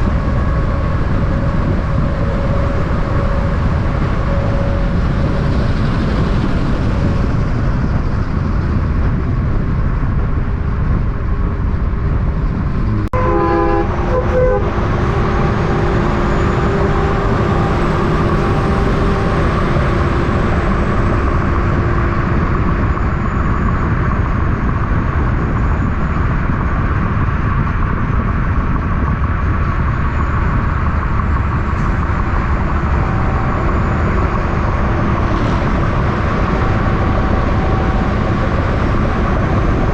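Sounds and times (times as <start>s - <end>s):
heavy traffic road noise: 0.0s - 39.9s
vehicle horn blast: 13.0s - 20.6s.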